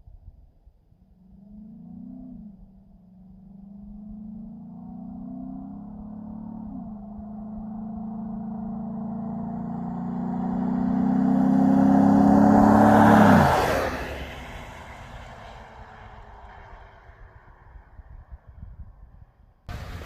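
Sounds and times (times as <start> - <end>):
truck engine accelerating past: 3.7 - 18.0.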